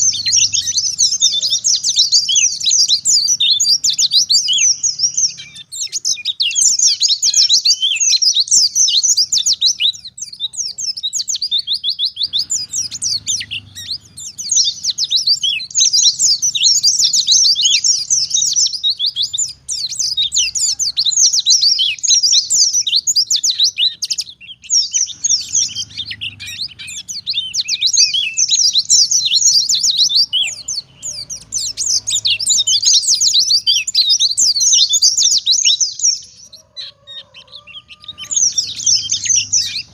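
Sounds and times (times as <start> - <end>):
bird high-pitched twittering: 0.0 - 39.9.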